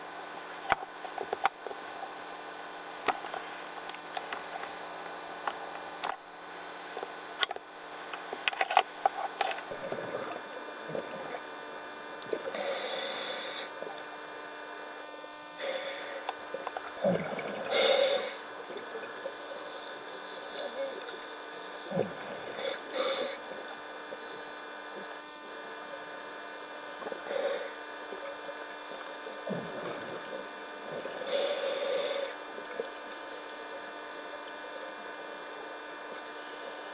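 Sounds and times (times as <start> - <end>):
steady hum: 0.0 - 36.9
diver's exhaled bubbles rushing: 17.0 - 17.8.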